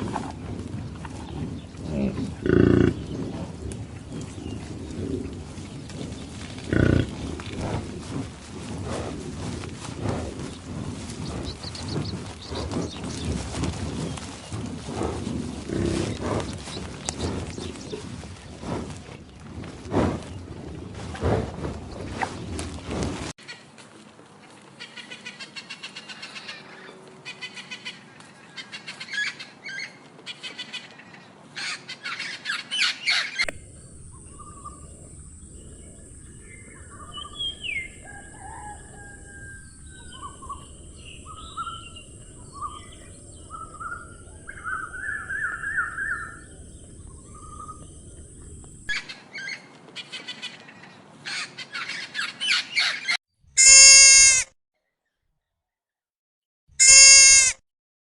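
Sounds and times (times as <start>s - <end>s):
small birds chirping: 0.0s - 23.1s, 32.0s - 53.2s.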